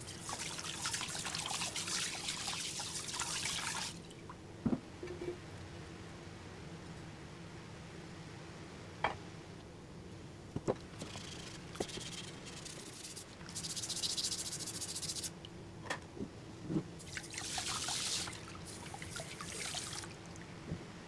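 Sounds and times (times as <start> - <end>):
fast scratchy rasp: 11.0 - 15.3.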